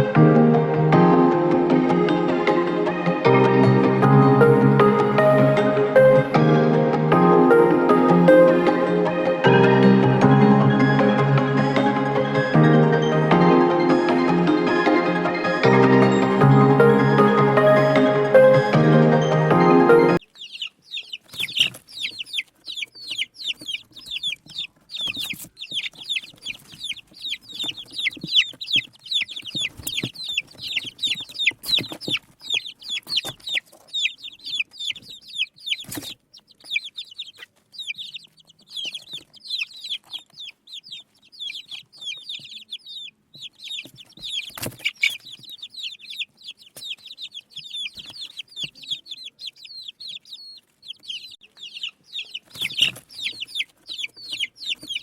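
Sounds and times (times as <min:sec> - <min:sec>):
small birds chirping: 0:20.1 - 0:55.0.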